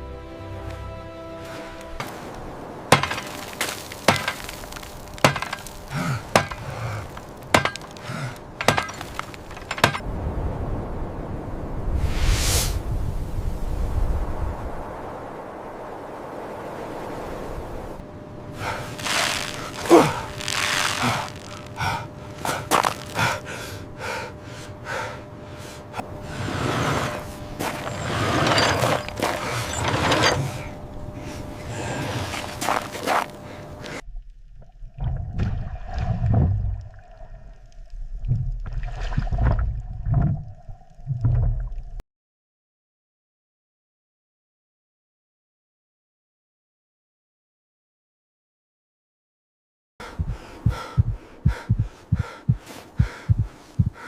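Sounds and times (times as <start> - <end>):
hand tool chopping ice: 2.9 - 10.0, 19.0 - 21.8, 22.4 - 23.3
person breathing hard: 5.8 - 8.8, 18.6 - 26.4, 50.0 - 54.0
effort grunts: 5.9 - 7.2, 18.6 - 24.2.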